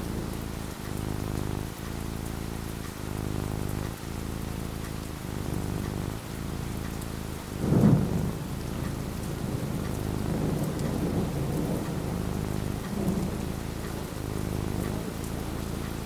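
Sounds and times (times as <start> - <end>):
steady rain falling: 0.0 - 16.0
thunder rumbling: 7.5 - 15.7.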